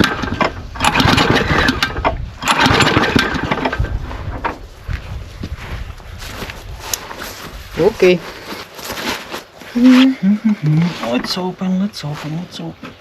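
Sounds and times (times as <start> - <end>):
pull-start cord: 0.0 - 4.5
lawnmower engine sputtering: 0.0 - 4.6.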